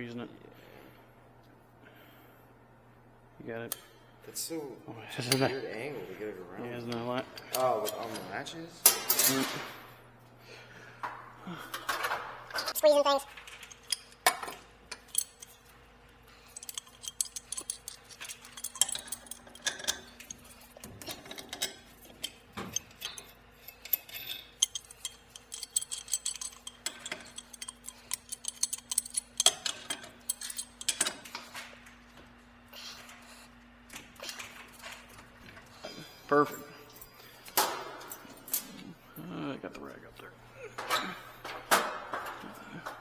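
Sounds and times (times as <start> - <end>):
steady low hum: 0.0 - 43.0
metal tools clicking and clinking: 5.2 - 5.9, 6.6 - 9.8, 11.7 - 39.0, 39.8 - 43.0.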